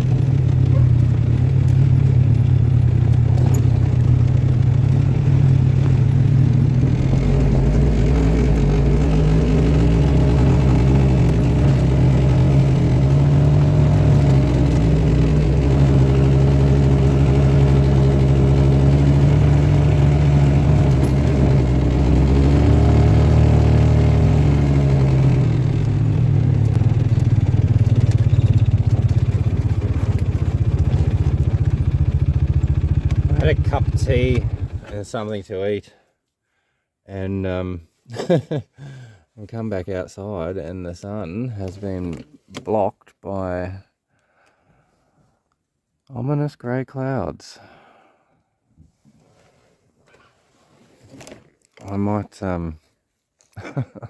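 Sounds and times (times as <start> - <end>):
vehicle engine running: 0.0 - 35.0.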